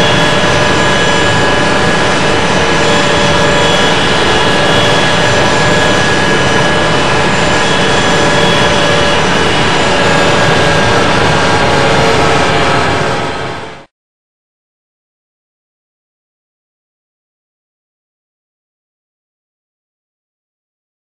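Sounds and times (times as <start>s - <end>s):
jet engines roaring in cabin: 0.0s - 13.9s
steady whining tones: 0.0s - 13.9s.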